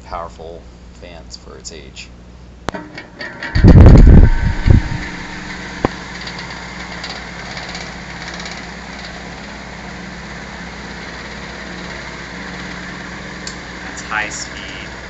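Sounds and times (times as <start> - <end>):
electric fan running: 0.0 - 15.0
fan blades rattling: 2.7 - 15.0
sharp click: 13.4 - 13.6.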